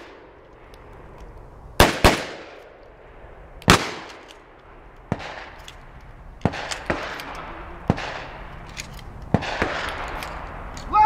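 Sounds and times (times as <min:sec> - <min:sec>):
shotgun shots with echo: 0:01.8 - 0:02.6, 0:03.7 - 0:04.1.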